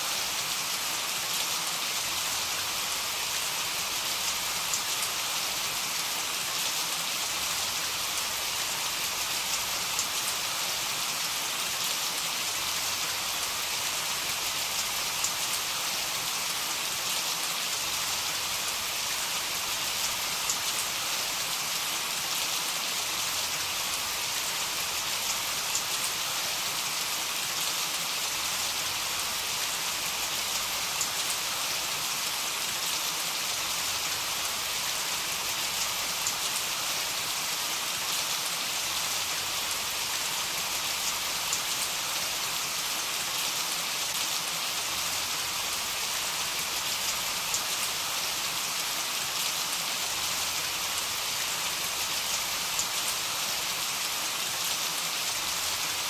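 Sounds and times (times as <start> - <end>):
heavy rain falling: 0.1 - 56.0.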